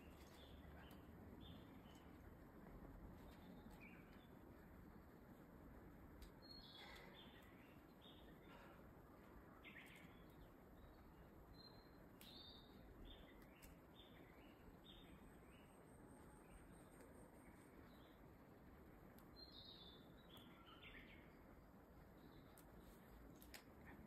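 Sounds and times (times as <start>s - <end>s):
low outdoor hiss: 0.0s - 24.0s
faint clicks: 22.4s - 24.0s.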